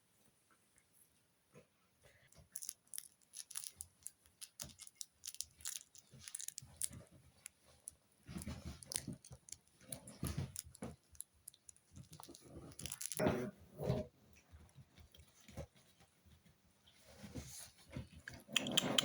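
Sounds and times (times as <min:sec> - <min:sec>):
puppy chewing and gnawing: 0:02.4 - 0:13.4, 0:17.2 - 0:19.0.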